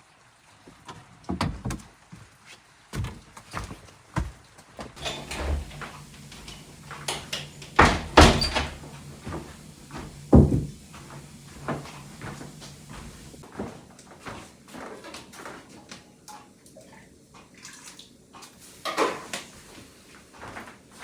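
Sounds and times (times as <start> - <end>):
wooden doors knocking and clattering: 5.0 - 13.4.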